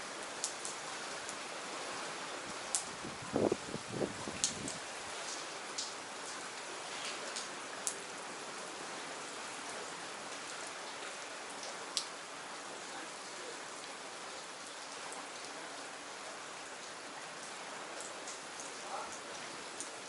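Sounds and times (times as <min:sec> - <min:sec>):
single raindrops striking nearby: 0:00.0 - 0:01.5, 0:02.4 - 0:08.2, 0:10.3 - 0:12.2, 0:16.8 - 0:20.0
steady rain falling: 0:00.0 - 0:20.0.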